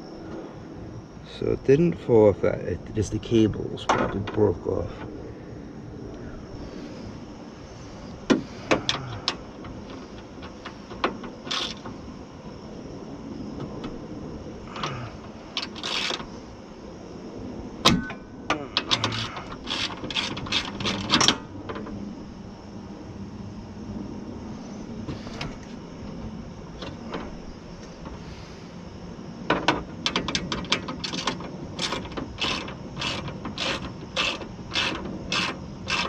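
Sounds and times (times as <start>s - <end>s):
metallic clicks and clanks of tools: 17.9s - 21.9s, 29.5s - 36.0s.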